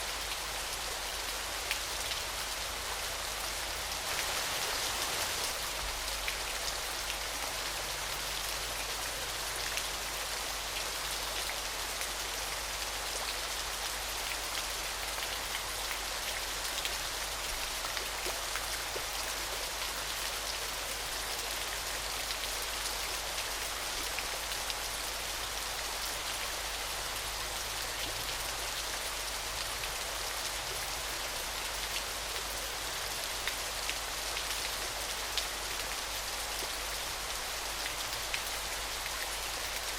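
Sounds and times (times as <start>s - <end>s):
waterfall rushing: 4.0s - 5.6s.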